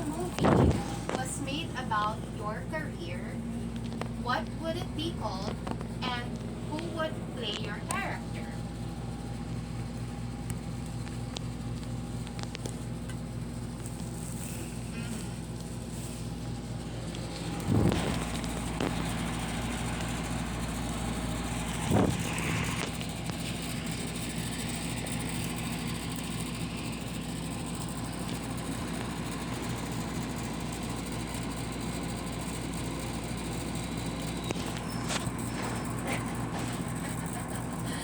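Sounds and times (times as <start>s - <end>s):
air conditioner humming: 0.0s - 38.0s.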